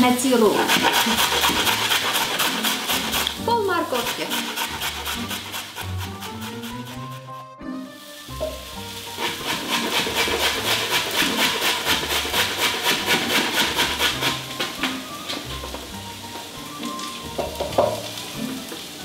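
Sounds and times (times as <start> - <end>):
carrot grated on metal grater: 0.4 - 7.2, 9.2 - 14.4.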